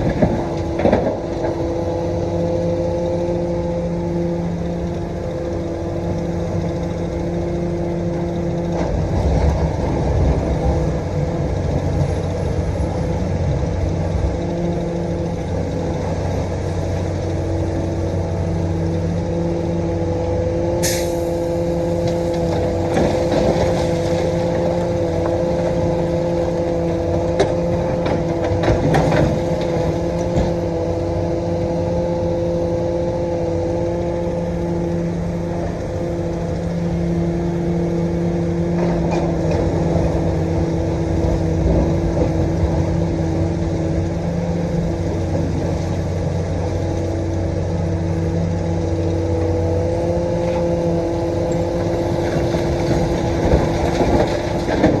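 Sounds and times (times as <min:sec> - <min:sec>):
excavator diesel engine running: 0:00.0 - 0:55.0
sharp hiss: 0:20.8 - 0:21.6.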